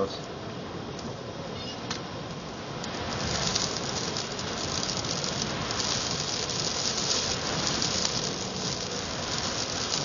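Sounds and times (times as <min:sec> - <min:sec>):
sand pelting windows: 0:02.8 - 0:10.0.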